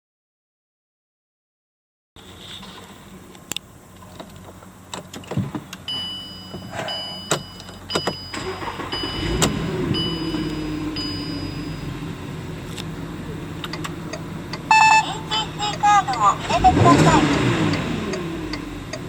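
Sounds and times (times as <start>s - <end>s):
car engine starting and idling: 2.2s - 19.0s
dashboard warning chime beeping: 5.9s - 12.1s, 13.7s - 19.0s.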